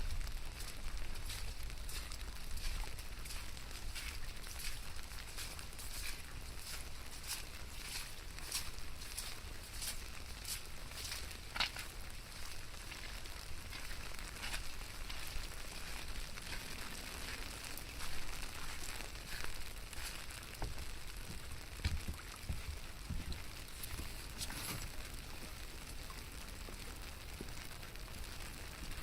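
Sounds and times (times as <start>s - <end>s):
rain falling: 0.0s - 29.0s
soft low thumps: 18.1s - 24.4s.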